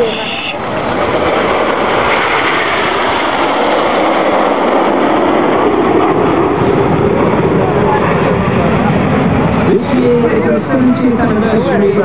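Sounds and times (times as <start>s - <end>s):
jets flying past: 0.0s - 12.0s.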